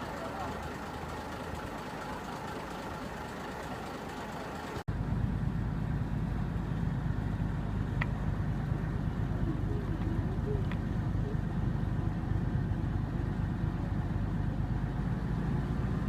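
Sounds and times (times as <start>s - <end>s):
ferry engine drone: 0.0s - 16.0s
boat and water noise: 8.0s - 15.1s.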